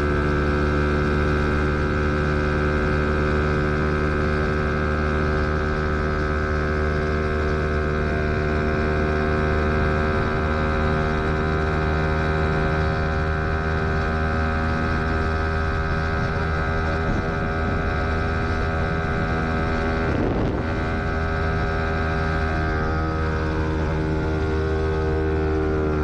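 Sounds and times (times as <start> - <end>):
motorcycle engine running steadily: 0.0 - 26.0.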